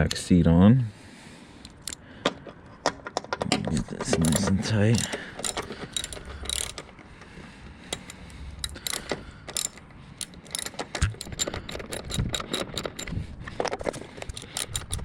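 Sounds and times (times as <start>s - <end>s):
ratchet wrench clicking: 1.6s - 2.0s, 4.2s - 6.9s, 7.9s - 13.2s, 14.1s - 15.0s.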